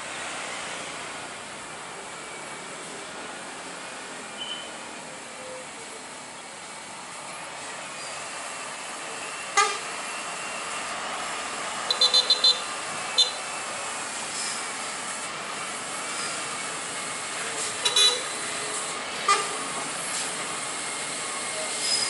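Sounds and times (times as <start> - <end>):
road traffic: 0.0 - 22.0
short horn toots: 9.6 - 9.9, 11.9 - 13.4, 17.8 - 18.3, 19.3 - 19.6.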